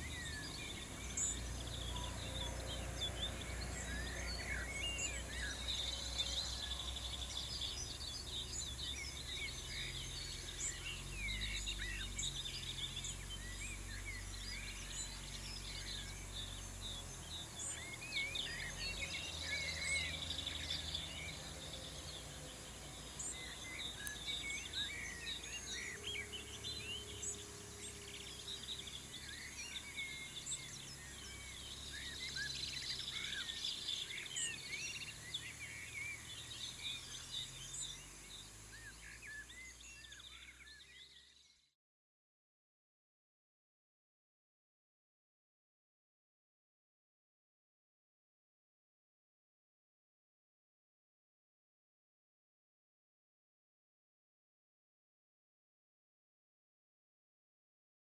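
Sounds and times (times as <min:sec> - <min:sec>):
small birds chirping: 0:00.0 - 0:41.8.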